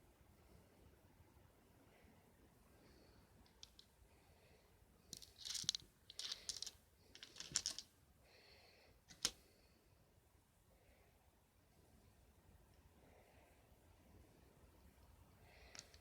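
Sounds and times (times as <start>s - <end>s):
quick clicking and rattling: 5.1s - 7.9s, 9.1s - 9.3s.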